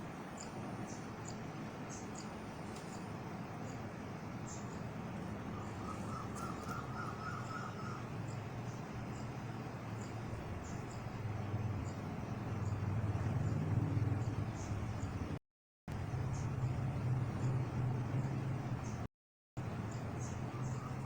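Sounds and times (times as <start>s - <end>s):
steady background noise: 0.0s - 21.0s
lower bird chirps: 0.3s - 15.3s, 19.8s - 21.0s.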